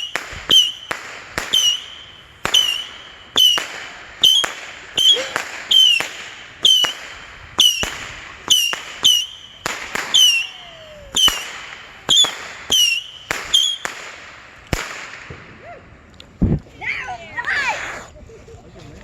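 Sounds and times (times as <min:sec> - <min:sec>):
missile launches with falling whistle: 0:07.6 - 0:13.8.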